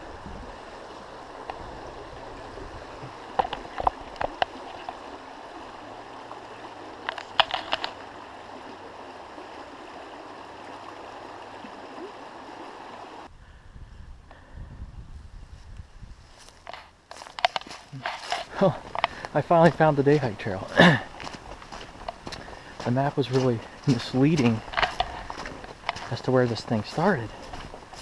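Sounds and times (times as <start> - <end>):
stream flowing: 0.0 - 13.3, 16.4 - 28.0.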